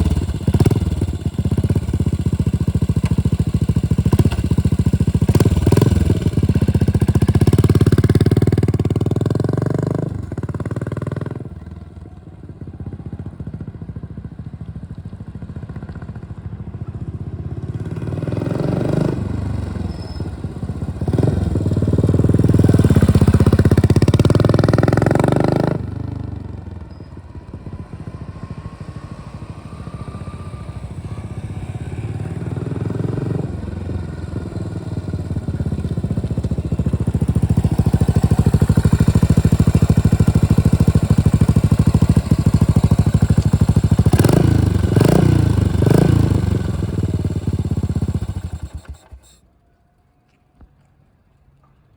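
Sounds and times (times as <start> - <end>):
motorcycle engine running: 0.0 - 49.4
engine throttle blips: 19.5 - 49.5.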